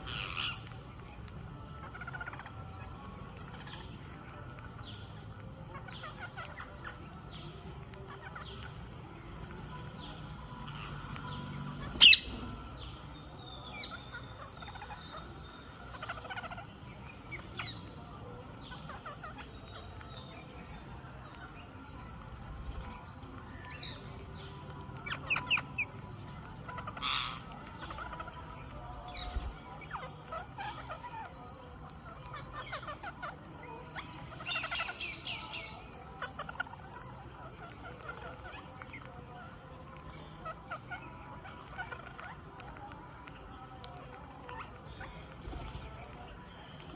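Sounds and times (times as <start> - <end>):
parakeets calling shrilly: 0.0 - 1.0, 8.1 - 16.8, 26.6 - 31.4, 32.4 - 36.8, 44.5 - 46.9.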